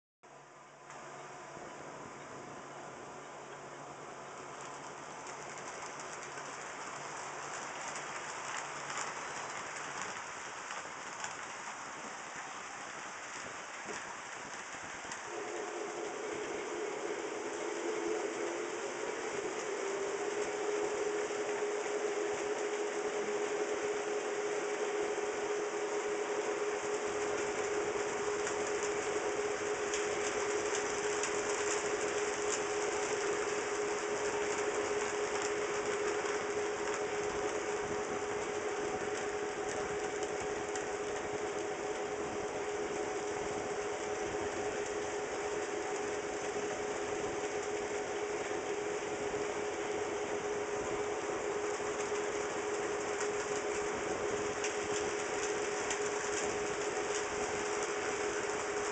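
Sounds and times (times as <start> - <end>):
small wheels clattering on rails: 4.4 - 21.6, 26.8 - 48.7, 51.7 - 58.9.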